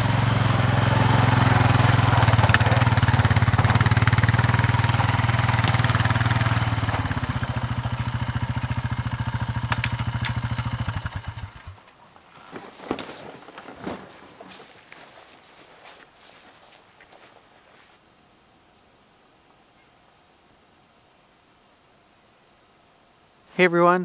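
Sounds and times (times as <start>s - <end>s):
atv engine running: 0.0s - 17.3s.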